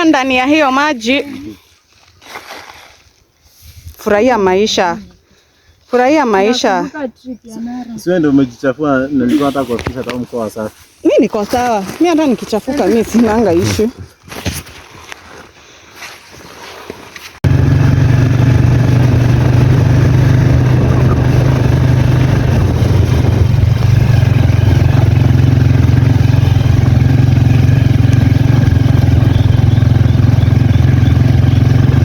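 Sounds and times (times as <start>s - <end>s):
motorcycle engine running: 17.4s - 32.0s.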